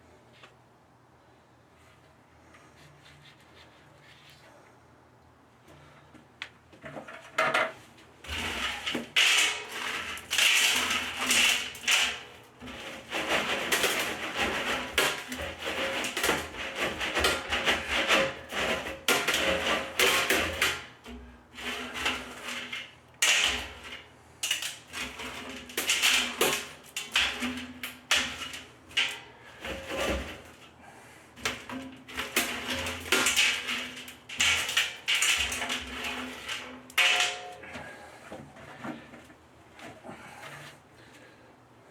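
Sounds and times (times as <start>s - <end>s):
gravel pouring and rattling: 8.2s - 38.2s.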